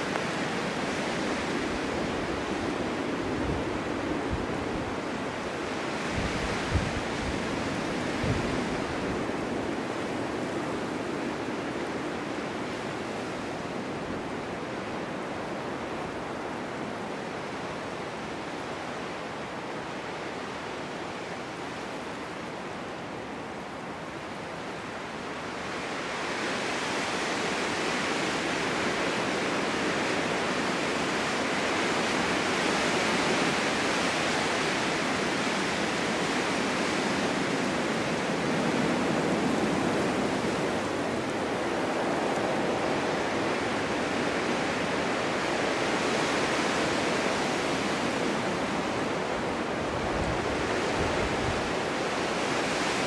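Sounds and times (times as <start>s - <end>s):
strong wind blowing: 0.0s - 14.7s, 25.7s - 53.0s.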